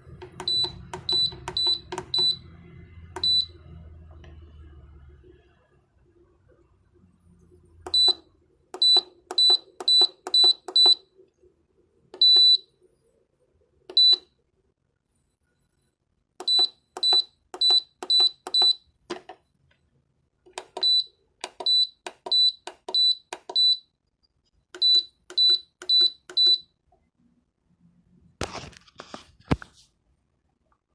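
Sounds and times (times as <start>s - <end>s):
short high-pitched beeps: 0.4s - 2.4s, 3.2s - 3.6s.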